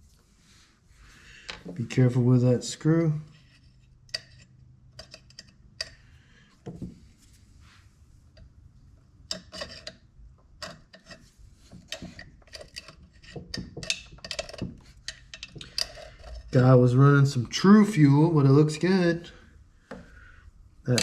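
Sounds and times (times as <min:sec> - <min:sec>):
small metal parts clicking: 0:11.9 - 0:16.5.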